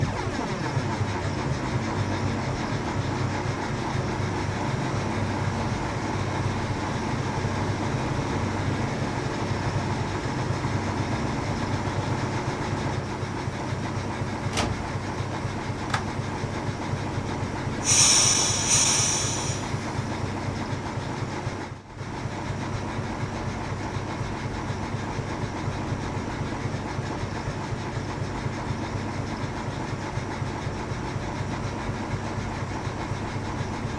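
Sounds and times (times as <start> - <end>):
diesel locomotive engine running: 0.0 - 33.9
high-pitched hiss: 17.8 - 19.9.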